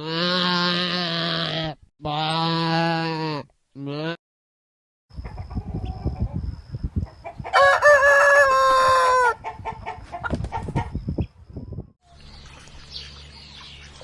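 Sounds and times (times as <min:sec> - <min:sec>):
chickens clucking: 0:05.2 - 0:08.2, 0:09.2 - 0:11.3
rooster crowing: 0:07.5 - 0:09.4.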